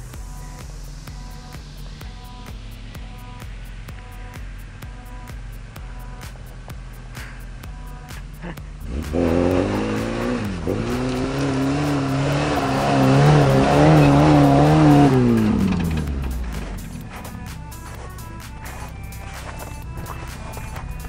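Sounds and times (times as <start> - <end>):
off-road engine revving hard: 8.4 - 21.0.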